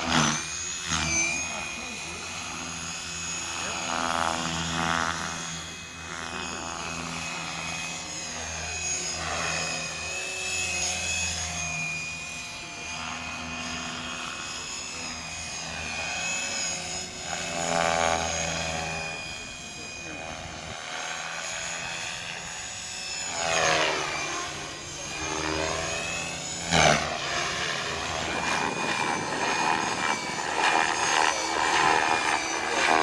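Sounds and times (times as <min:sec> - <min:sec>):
model helicopter motor whine: 0:00.0 - 0:33.0
rotor blades whooshing: 0:15.8 - 0:33.0.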